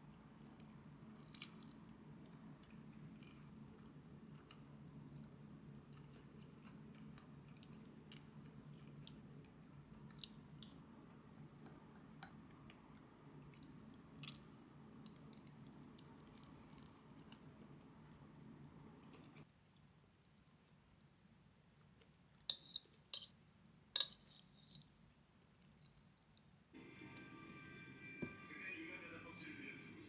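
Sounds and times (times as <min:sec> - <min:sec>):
low steady hum: 0:00.0 - 0:19.8, 0:26.8 - 0:30.0
chewing: 0:00.4 - 0:10.8, 0:25.5 - 0:26.7.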